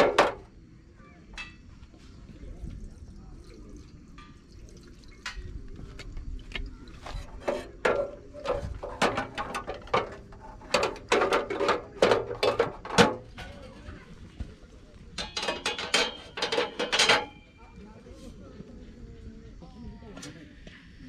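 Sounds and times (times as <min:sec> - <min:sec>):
clicks and clattering knocks: 0:00.0 - 0:00.5, 0:07.1 - 0:13.8, 0:15.2 - 0:17.4.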